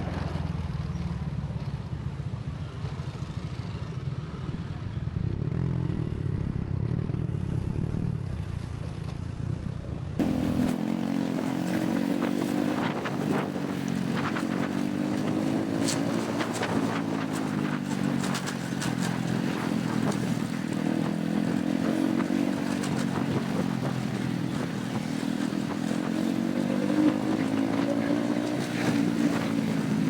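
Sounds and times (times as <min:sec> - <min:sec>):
motorbike engine running: 0:10.2 - 0:30.0.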